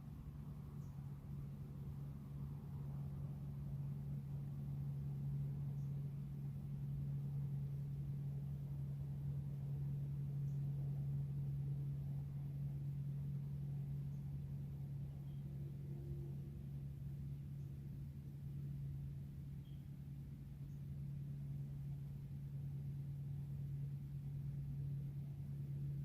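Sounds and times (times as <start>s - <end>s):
steady low hum: 0.0s - 26.0s
faint high chirps: 15.1s - 16.3s, 19.6s - 20.0s.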